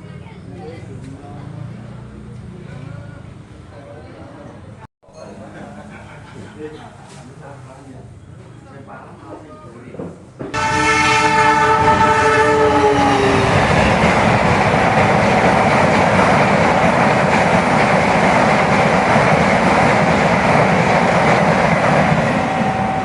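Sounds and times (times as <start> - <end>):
train rumbling on rails: 10.0 - 23.0
train horn: 10.5 - 14.0, 22.3 - 23.0.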